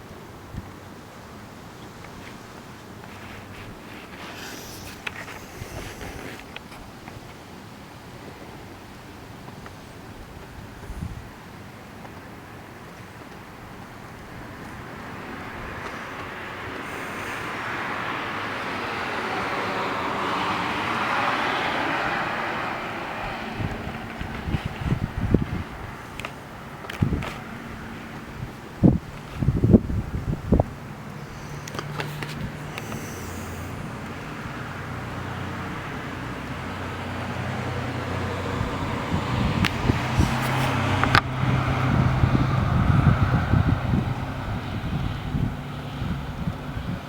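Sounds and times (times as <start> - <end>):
passing vehicle rushing: 2.2 - 7.0, 14.3 - 47.0.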